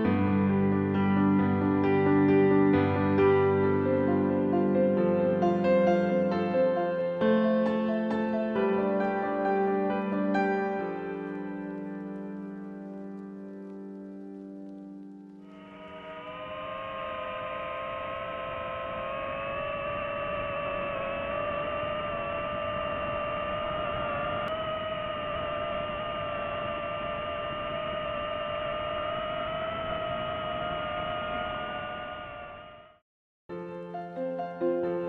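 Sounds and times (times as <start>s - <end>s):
drone propellers whining: 15.4s - 33.0s.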